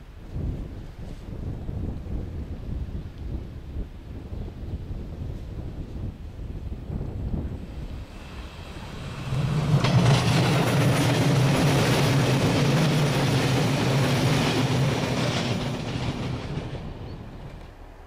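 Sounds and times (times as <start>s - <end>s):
electric train passing at speed: 0.0s - 18.0s.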